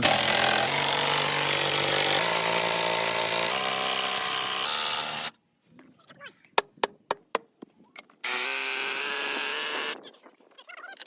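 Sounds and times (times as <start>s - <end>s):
motor tool humming: 0.0s - 5.3s, 8.2s - 10.0s.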